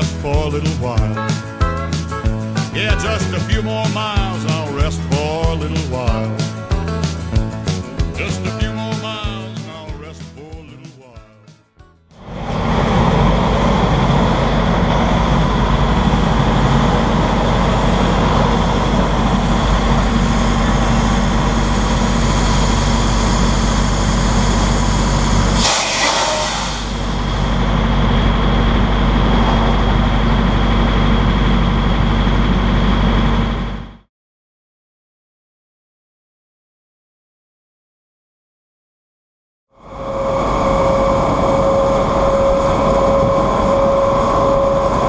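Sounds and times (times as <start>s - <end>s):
heavy vehicle engine drone: 0.0s - 9.8s, 12.1s - 34.1s, 39.8s - 45.0s
road noise: 12.2s - 33.7s, 39.8s - 45.0s
brief hiss: 24.2s - 27.4s.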